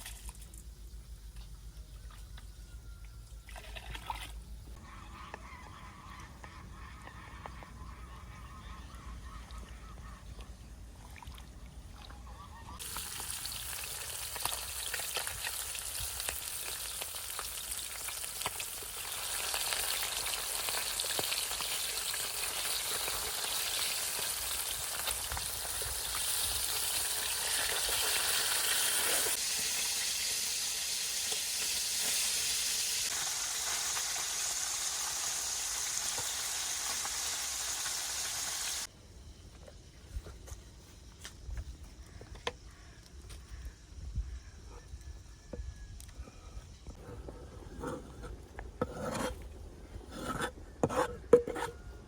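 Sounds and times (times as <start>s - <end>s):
geese honking faintly: 4.8s - 10.5s
food sizzling in hot oil: 12.8s - 38.9s.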